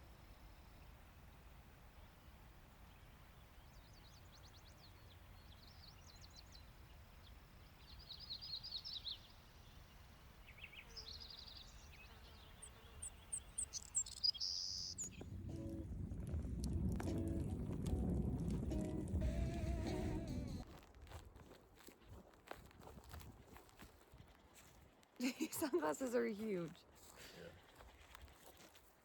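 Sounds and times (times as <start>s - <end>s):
small birds chirping: 0.3s - 20.6s
low steady rumble: 15.0s - 20.7s.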